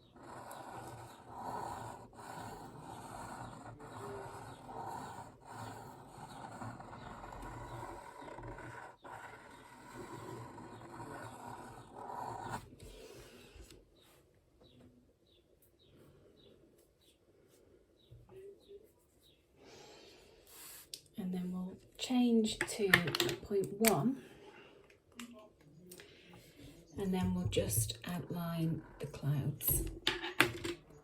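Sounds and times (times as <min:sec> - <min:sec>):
pen scratching across paper: 0:00.0 - 0:13.2.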